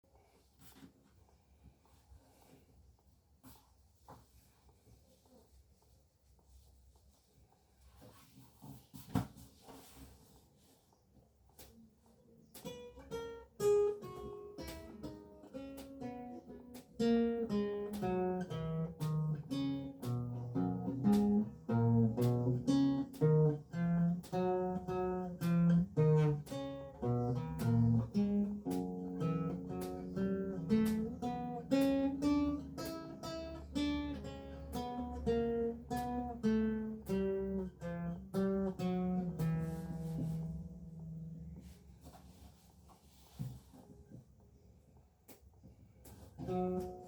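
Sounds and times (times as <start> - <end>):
lute plucked solo: 12.7 - 41.4.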